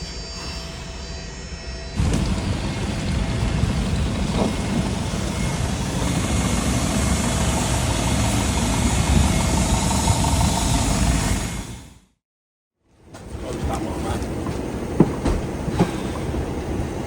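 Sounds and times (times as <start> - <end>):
rising engine whine: 1.1 - 12.1
jet engines running: 2.0 - 12.1, 13.2 - 17.0.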